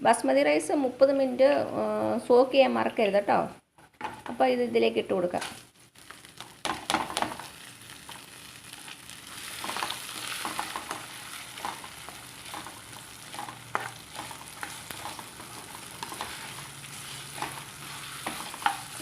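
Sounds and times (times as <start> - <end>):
rice sizzling in hot fat: 5.4 - 19.0
spoon scraping against pan: 9.3 - 19.0.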